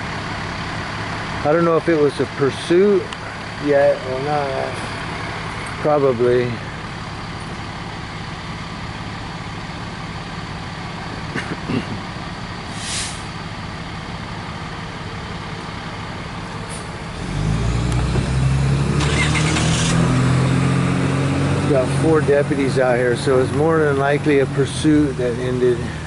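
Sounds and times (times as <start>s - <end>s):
loud deep engine running: 0.0s - 26.0s
vehicle engines humming: 0.0s - 26.0s
air hiss: 12.7s - 13.3s.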